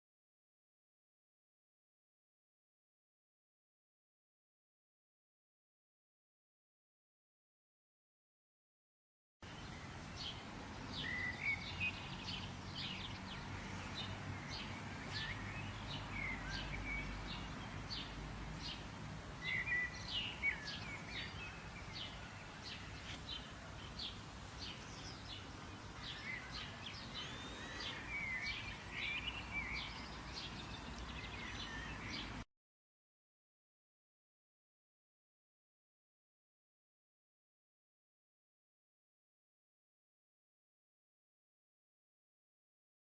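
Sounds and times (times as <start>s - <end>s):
birds chirping: 9.4s - 32.4s
steady low background noise: 9.4s - 32.4s.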